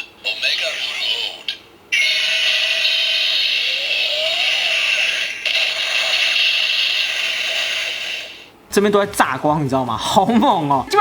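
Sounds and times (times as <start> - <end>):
buzzy electronic toy sound effect: 1.9 - 8.5.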